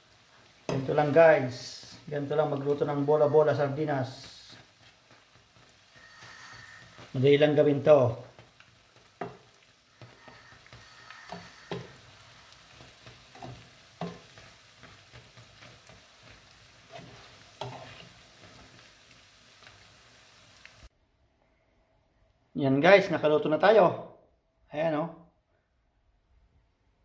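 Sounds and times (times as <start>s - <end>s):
fish balls sizzling in oil: 0.0s - 20.9s
spatula scraping a pan: 2.8s - 7.6s, 8.2s - 18.9s.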